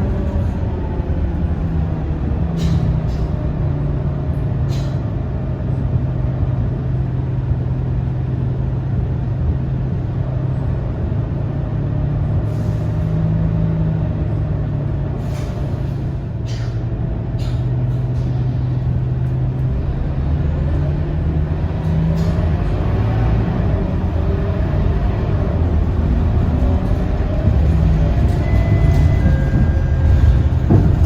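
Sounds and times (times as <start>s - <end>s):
bus diesel engine droning: 0.0s - 31.0s
air brake hisses: 4.7s - 5.0s, 12.5s - 13.0s, 15.2s - 16.8s.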